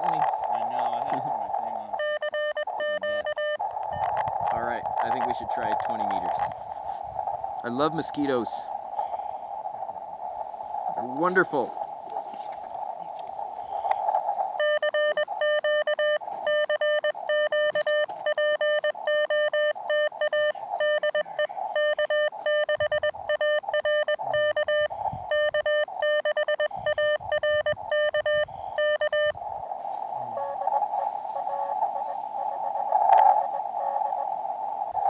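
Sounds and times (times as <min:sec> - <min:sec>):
radio receiver hiss: 0:00.0 - 0:35.0
morse code beeps: 0:01.8 - 0:06.5, 0:14.6 - 0:29.4, 0:30.2 - 0:32.0, 0:33.5 - 0:34.1.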